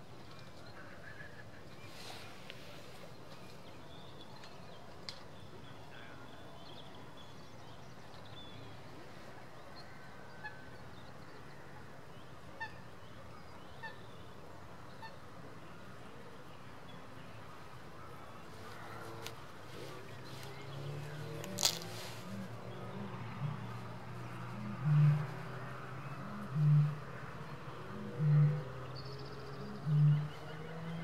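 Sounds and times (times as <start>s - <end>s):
distant bird calls: 16.9s - 31.0s.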